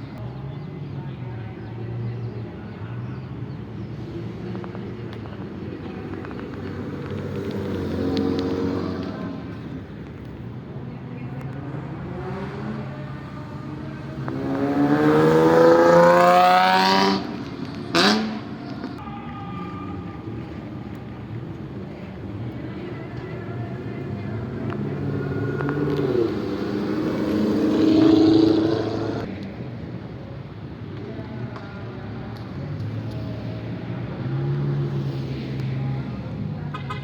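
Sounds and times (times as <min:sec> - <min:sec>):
car engine revving: 0:06.0 - 0:09.8, 0:14.0 - 0:19.0, 0:24.0 - 0:29.3.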